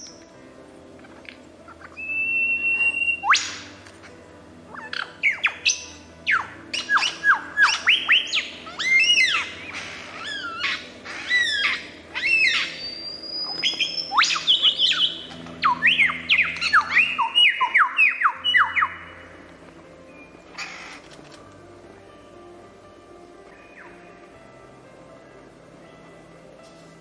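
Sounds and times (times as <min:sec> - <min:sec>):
low music bed: 0:00.0 - 0:27.0
birds squawking and chirping: 0:00.9 - 0:19.6, 0:20.2 - 0:21.4.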